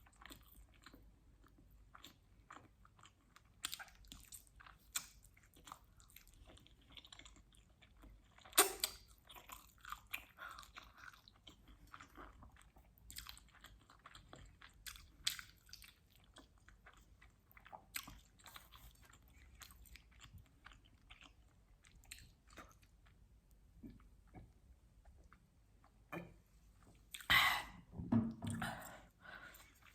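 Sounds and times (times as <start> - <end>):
wet mouth clicks: 8.6 - 9.1.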